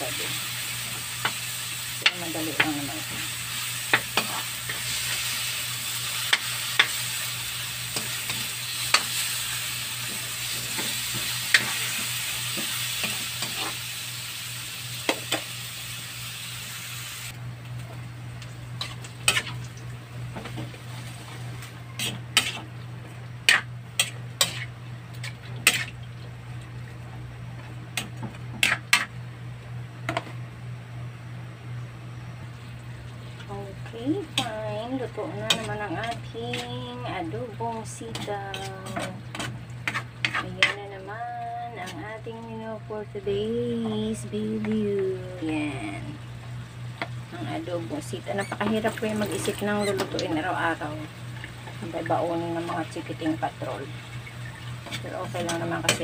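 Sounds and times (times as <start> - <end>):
food sizzling in a wok: 0.0 - 17.4, 18.6 - 22.8, 23.4 - 26.0, 33.8 - 41.2, 44.1 - 56.0
low steady hum: 0.0 - 56.0.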